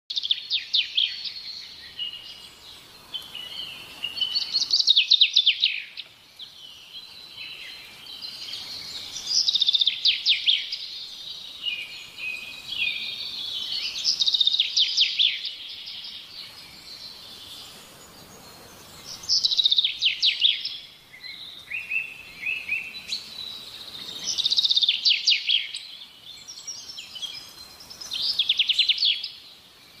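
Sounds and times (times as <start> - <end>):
soft bird twittering: 0.1 - 30.0
songbird trilling phrase: 3.1 - 16.3, 19.1 - 29.4.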